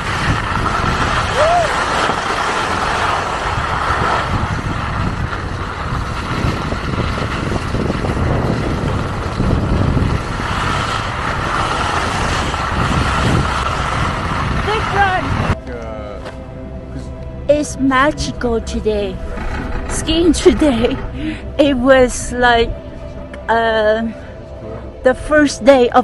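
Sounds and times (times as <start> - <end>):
skis hissing over snow: 0.0 - 15.5
wind rushing over microphone: 0.0 - 15.6, 16.4 - 26.0.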